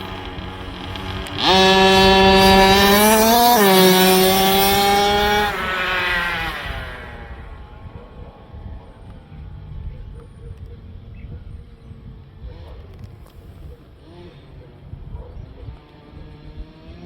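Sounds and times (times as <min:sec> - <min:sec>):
rc truck motor whining: 0:00.0 - 0:09.2.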